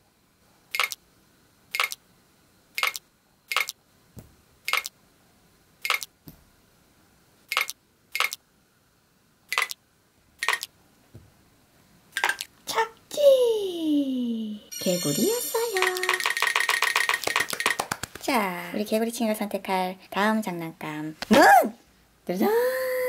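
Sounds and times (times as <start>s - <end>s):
jelly toy slapping on glass: 12.2s - 12.5s, 15.8s - 18.2s.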